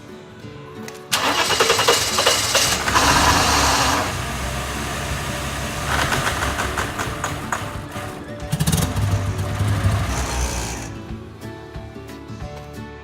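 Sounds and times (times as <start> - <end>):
car engine starting and idling: 1.1 - 11.4.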